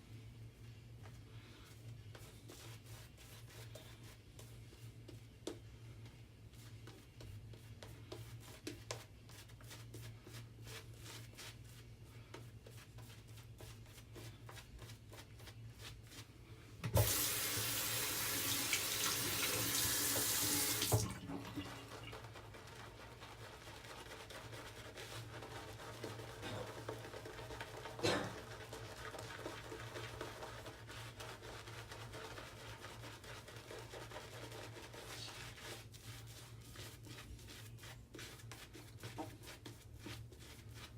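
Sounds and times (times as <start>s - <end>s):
tap water running into sink: 16.8s - 21.7s.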